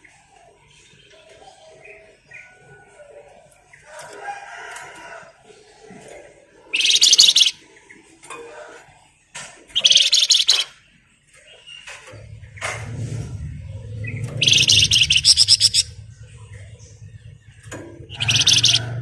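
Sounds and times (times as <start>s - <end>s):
fast high bird trills: 6.7s - 7.6s, 9.8s - 10.8s, 14.0s - 16.4s, 18.0s - 19.0s
bird soft chirps: 6.8s - 7.6s, 9.8s - 10.7s, 13.9s - 17.2s, 18.1s - 18.9s.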